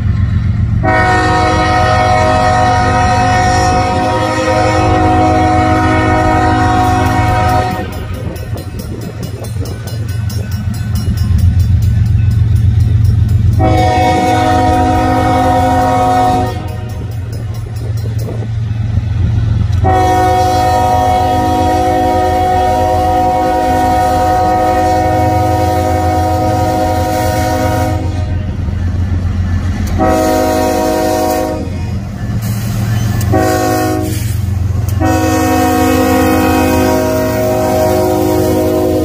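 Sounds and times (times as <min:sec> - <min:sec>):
train rumble: 0:00.0 - 0:39.0
train air horn blasts: 0:00.8 - 0:08.6, 0:13.5 - 0:17.2, 0:19.7 - 0:28.4, 0:29.8 - 0:39.0.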